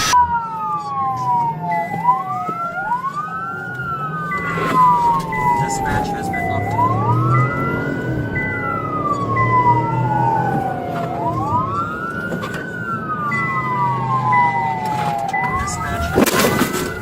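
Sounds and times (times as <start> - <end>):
high steady tone: 0.0 - 2.1, 2.8 - 12.0
low engine hum: 0.0 - 17.0
police sirens wailing: 0.0 - 17.0.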